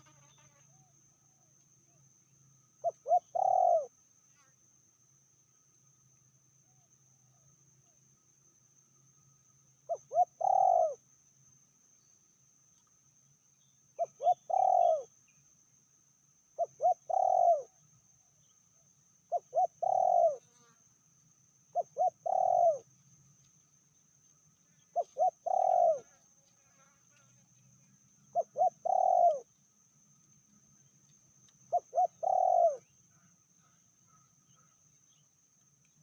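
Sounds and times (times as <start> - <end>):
dove cooing: 2.8 - 3.9, 9.9 - 11.0, 14.0 - 15.1, 16.6 - 17.8, 19.3 - 20.4, 21.7 - 22.9, 24.9 - 26.1, 28.3 - 29.5, 31.7 - 32.9.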